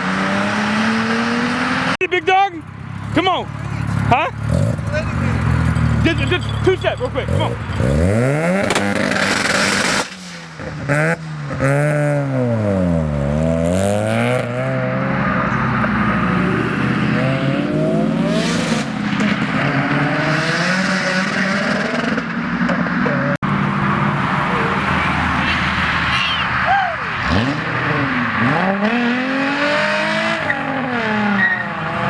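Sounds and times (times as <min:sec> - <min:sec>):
car engine revving: 0:00.0 - 0:02.0, 0:02.8 - 0:32.0
exhaust pops: 0:05.6 - 0:11.6.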